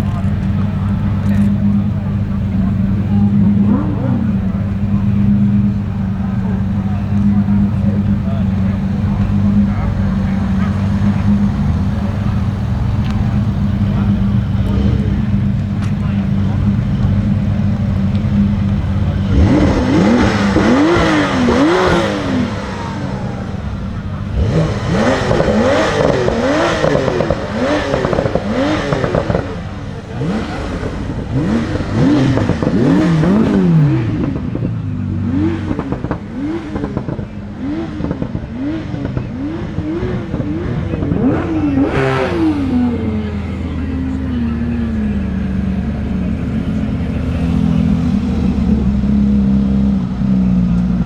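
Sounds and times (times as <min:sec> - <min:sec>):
car engines revving: 0:00.0 - 0:51.0
engine idling: 0:00.0 - 0:51.0.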